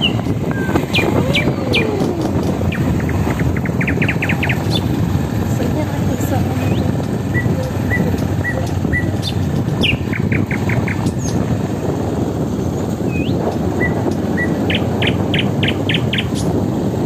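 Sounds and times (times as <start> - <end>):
forest bird singing: 0.0 - 5.0, 6.6 - 11.4, 13.1 - 16.5
motorcycle riding noise: 0.0 - 17.0
wind rumble: 0.0 - 17.0.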